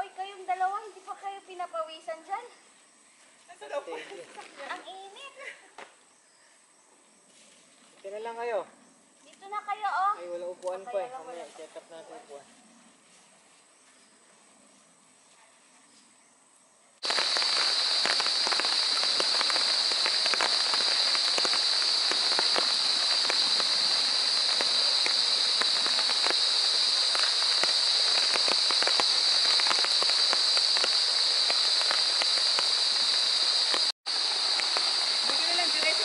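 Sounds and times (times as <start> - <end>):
high-pitched hiss: 17.0 - 36.0
rain falling: 17.0 - 36.0.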